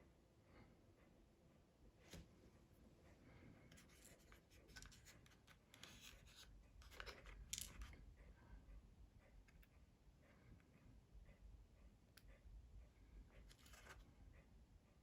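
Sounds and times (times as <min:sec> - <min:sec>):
small objects clicking and scraping: 0:06.8 - 0:08.0.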